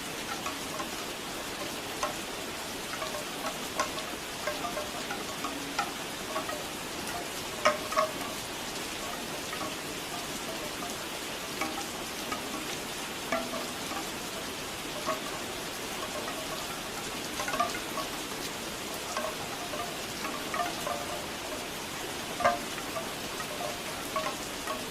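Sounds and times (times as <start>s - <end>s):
bamboo wind chimes knocking: 0.0s - 24.9s
steady rain: 0.0s - 24.9s.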